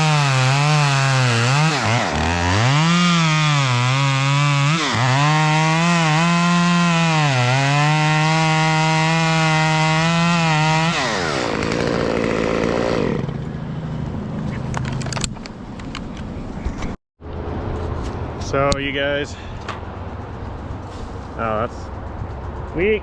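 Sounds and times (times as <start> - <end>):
chainsaw running: 0.0 - 13.4.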